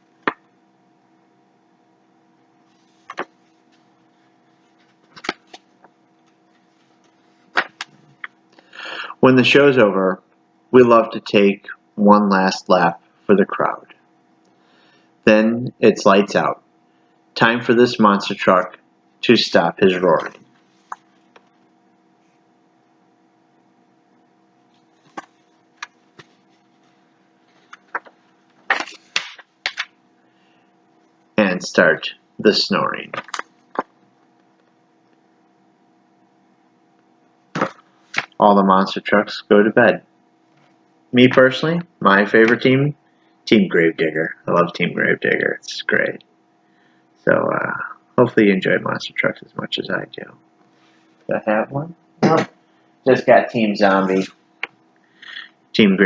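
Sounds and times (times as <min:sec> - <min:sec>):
faint steady hum: 0:00.0 - 0:56.0
page turning rustle: 0:02.8 - 0:03.5, 0:04.8 - 0:05.7, 0:27.5 - 0:29.9, 0:33.1 - 0:33.9, 0:37.6 - 0:38.4.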